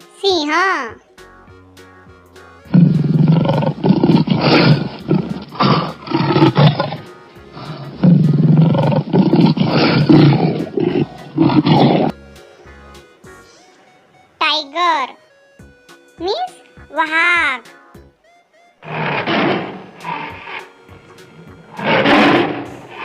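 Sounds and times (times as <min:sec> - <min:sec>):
lion roaring: 0:02.7 - 0:12.1, 0:18.8 - 0:23.0.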